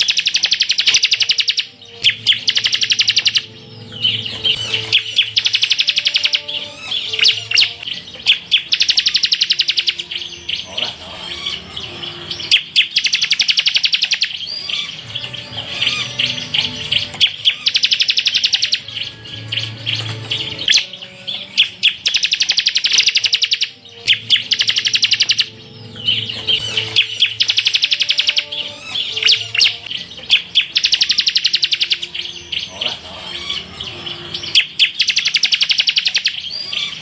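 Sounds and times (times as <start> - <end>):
bird rattling trills: 0.0 - 3.5, 4.4 - 10.1, 12.5 - 15.0, 15.8 - 18.9, 19.6 - 25.5, 26.2 - 32.2, 34.5 - 37.0
bird chirps: 0.0 - 37.0.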